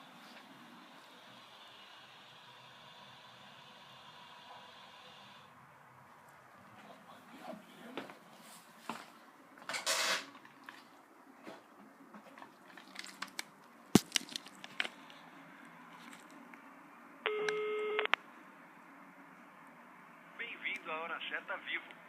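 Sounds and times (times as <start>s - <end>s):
electronic beep: 17.3s - 18.1s.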